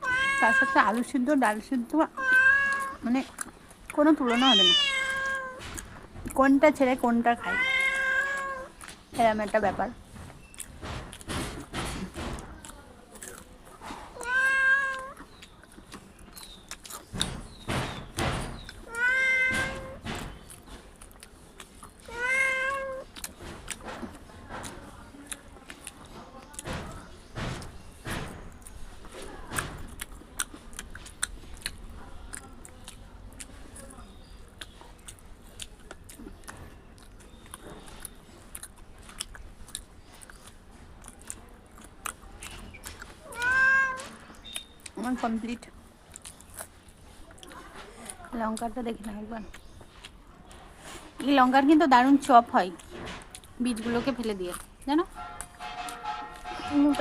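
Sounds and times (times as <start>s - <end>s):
cat meowing: 0.0s - 1.0s, 2.1s - 3.0s, 4.2s - 5.6s, 7.4s - 8.7s, 14.2s - 15.2s, 18.8s - 20.0s, 22.1s - 23.1s, 43.2s - 44.4s
chewing with wet mouth clicks: 2.6s - 4.0s, 8.2s - 9.6s, 10.4s - 11.3s, 12.6s - 14.2s, 14.9s - 17.7s, 20.2s - 22.1s, 23.0s - 26.8s, 29.6s - 43.5s, 44.2s - 51.2s, 54.4s - 56.7s.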